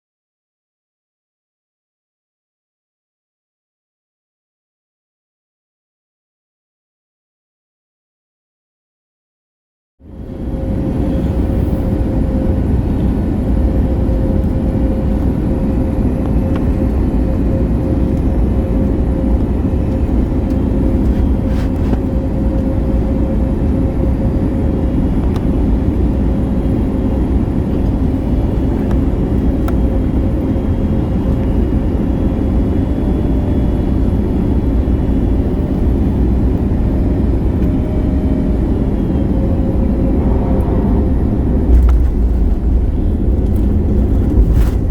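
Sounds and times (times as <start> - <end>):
constant hum-like tone: 10.0 - 44.9
jet engine cabin rumble: 10.0 - 44.9.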